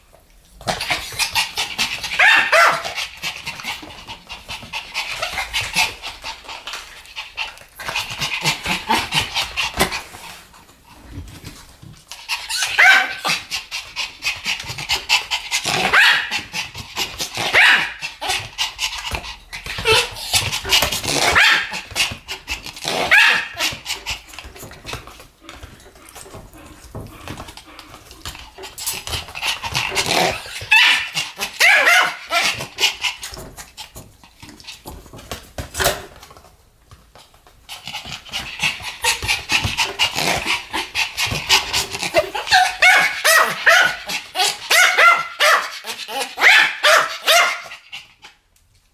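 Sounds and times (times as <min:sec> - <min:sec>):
small dogs yapping: 0:00.7 - 0:03.9, 0:12.3 - 0:13.6, 0:14.2 - 0:24.2, 0:28.6 - 0:33.2, 0:38.3 - 0:47.9.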